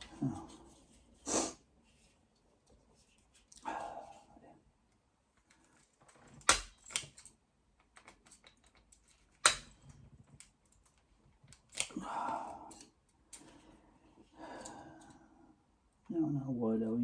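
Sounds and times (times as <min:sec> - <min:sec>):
hand tools clicking and knocking: 0:06.2 - 0:13.5.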